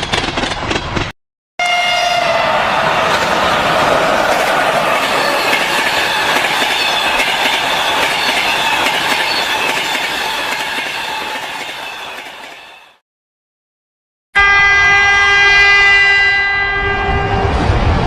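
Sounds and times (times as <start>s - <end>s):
train wheels squealing: 4.8s - 13.0s.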